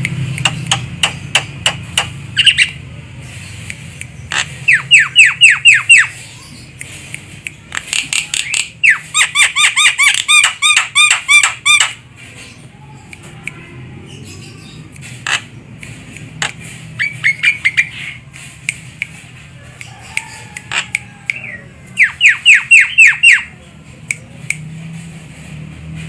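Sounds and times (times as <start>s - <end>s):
bird squawking: 2.4s - 2.8s, 4.2s - 6.6s, 7.9s - 12.6s, 14.6s - 15.6s, 16.4s - 18.2s, 20.7s - 23.5s
bird calling: 19.9s - 23.5s.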